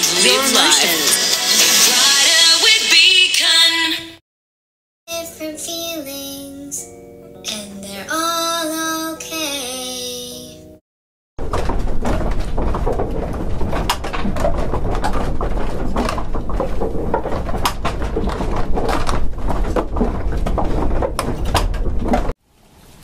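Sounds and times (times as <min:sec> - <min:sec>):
tools knocking and clattering: 0:11.4 - 0:22.4.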